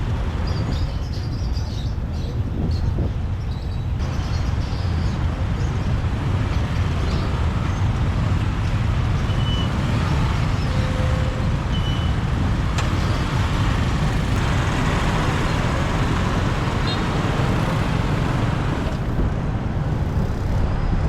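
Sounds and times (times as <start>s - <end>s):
motorbike road noise in traffic: 0.0s - 21.0s
faint beeps: 9.2s - 12.3s.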